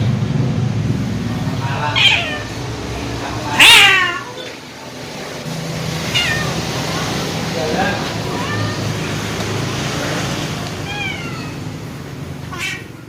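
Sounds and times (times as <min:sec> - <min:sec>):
low rumble: 0:00.0 - 0:03.6
cats yowling: 0:01.6 - 0:04.8, 0:06.0 - 0:06.9, 0:07.8 - 0:09.4, 0:10.0 - 0:11.8, 0:12.4 - 0:13.0.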